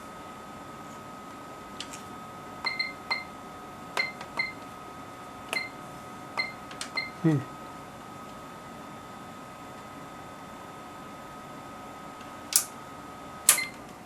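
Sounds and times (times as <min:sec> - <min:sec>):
metallic clicks and clinks: 0:13.5 - 0:13.7.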